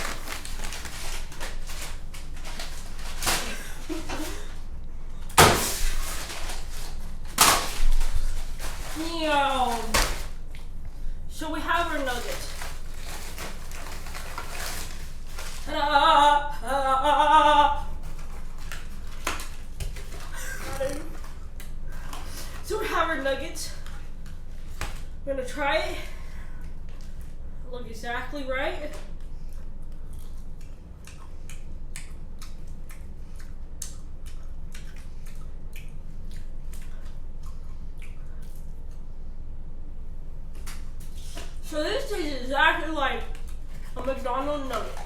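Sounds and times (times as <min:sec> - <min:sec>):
steady low hum: 0:00.0 - 0:45.0
chewing crispy food: 0:29.1 - 0:39.2.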